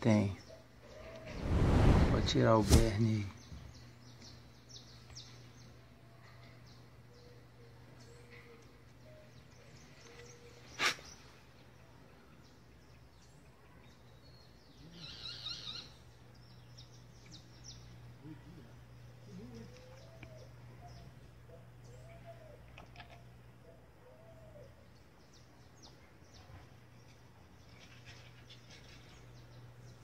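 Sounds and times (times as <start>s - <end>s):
birds chirping: 0.0s - 30.0s
bird trill: 14.8s - 16.0s.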